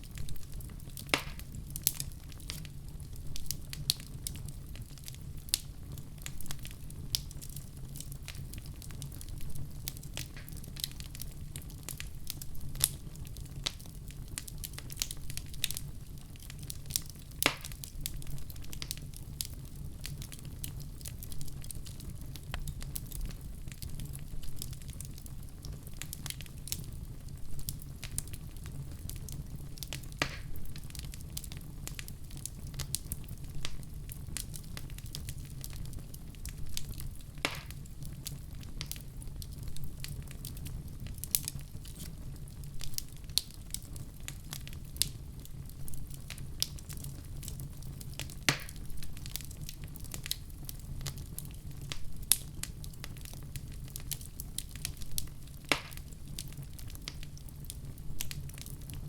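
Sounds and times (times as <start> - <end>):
low steady fire rumble: 0.0 - 59.0
wood fire crackling: 0.0 - 59.0
sharp pops and snaps: 1.1 - 2.6, 10.2 - 10.6, 17.4 - 17.8, 30.2 - 30.6, 37.4 - 37.8, 48.4 - 48.9, 55.6 - 56.1.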